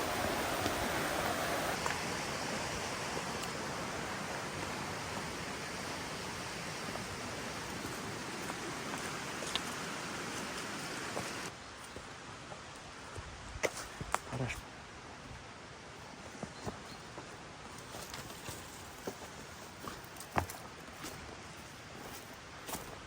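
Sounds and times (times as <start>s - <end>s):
water rushing: 0.0s - 11.5s.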